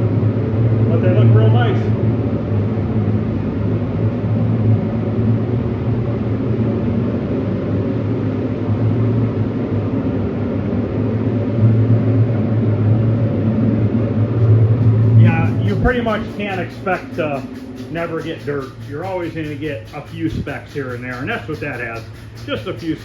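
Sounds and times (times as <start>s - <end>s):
electric motor humming: 14.3s - 23.0s.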